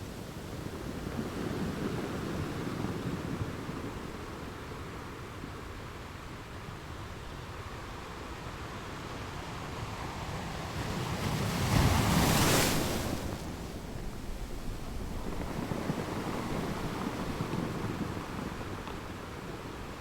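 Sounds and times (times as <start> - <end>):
ocean waves breaking: 10.1 - 20.0.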